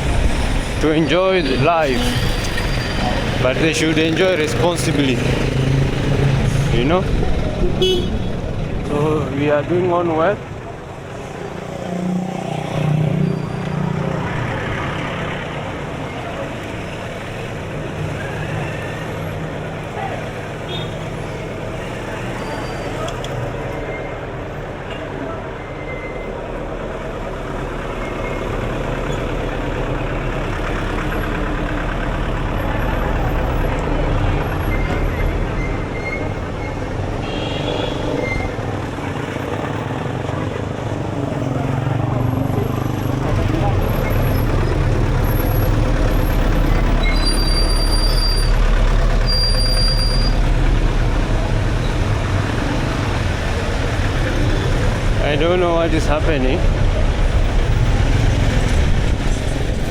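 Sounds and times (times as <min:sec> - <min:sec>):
heavy vehicle engine rumbling: 0:00.0 - 0:59.9
street traffic: 0:00.0 - 0:59.9
high-pitched squeals: 0:00.2 - 0:06.7, 0:34.3 - 0:38.9, 0:43.6 - 0:50.8.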